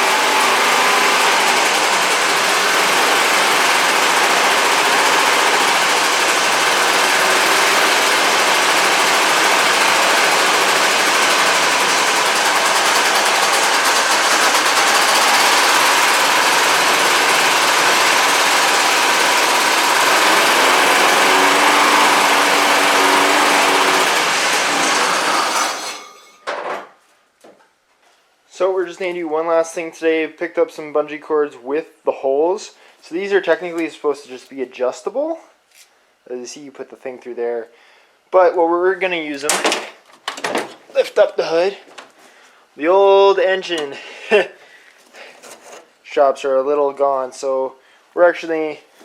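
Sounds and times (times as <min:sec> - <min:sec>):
snowmobile engine running: 0:00.0 - 0:25.0.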